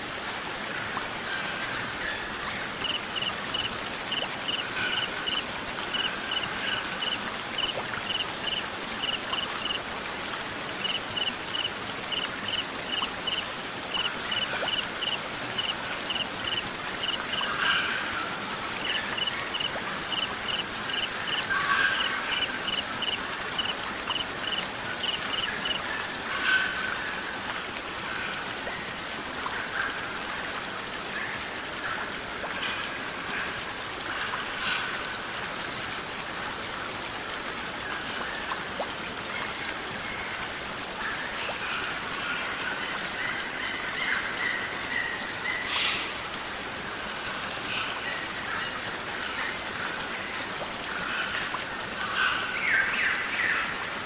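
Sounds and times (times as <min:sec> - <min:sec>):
hiss of water: 0:00.0 - 0:29.9
cricket chirping: 0:02.8 - 0:09.8, 0:10.8 - 0:17.5, 0:18.8 - 0:21.4, 0:22.3 - 0:25.8.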